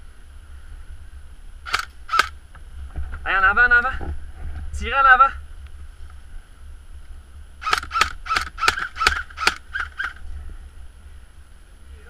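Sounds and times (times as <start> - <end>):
airsoft rifle shots: 1.7 - 2.4, 7.6 - 10.2.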